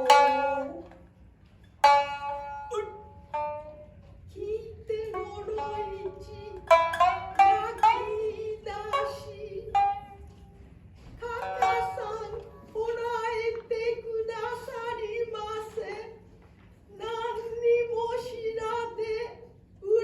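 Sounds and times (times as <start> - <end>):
shamisen plucked notes: 0.0 - 1.0, 1.8 - 10.5, 11.2 - 12.8.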